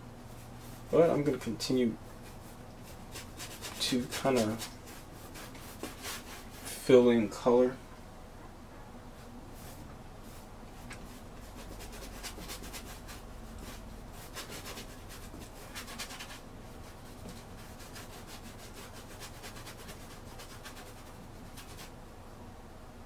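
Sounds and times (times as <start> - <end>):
paintbrush scrubbing on canvas: 2.0 - 6.9, 9.2 - 22.0.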